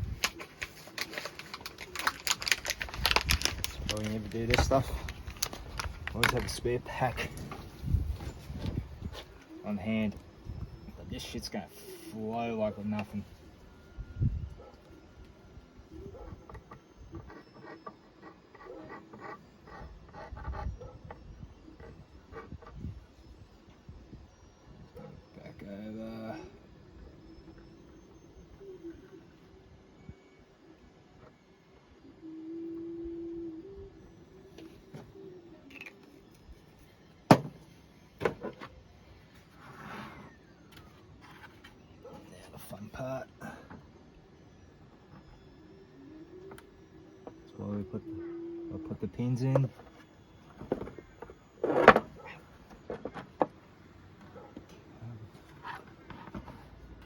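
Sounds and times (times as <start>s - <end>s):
plastic scraping rustle: 0.0s - 9.4s.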